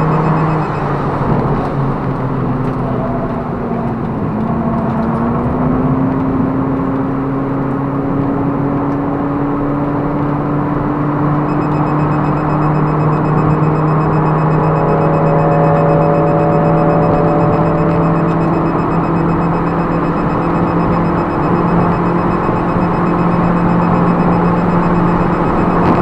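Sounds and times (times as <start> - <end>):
car engine drone in cabin: 0.0 - 26.0
rising drivetrain tone: 11.5 - 26.0.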